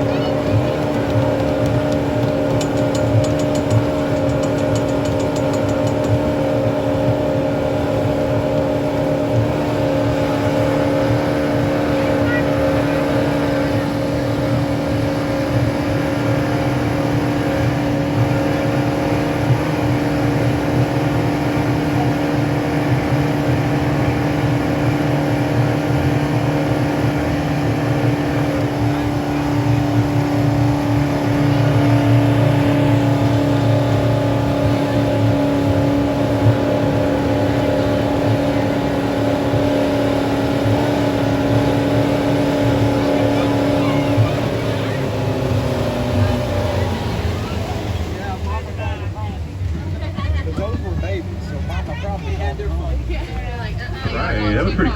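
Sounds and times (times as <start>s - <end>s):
motorboat engine droning: 0.0s - 50.3s, 51.2s - 54.9s.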